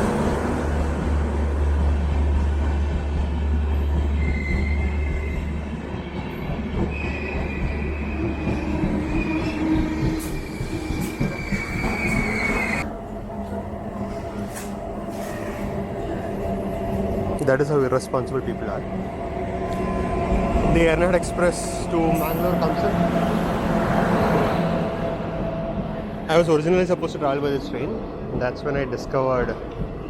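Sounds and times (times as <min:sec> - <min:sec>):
train rumbling: 0:00.0 - 0:30.0
train wheels squealing: 0:04.0 - 0:12.8, 0:14.4 - 0:15.8.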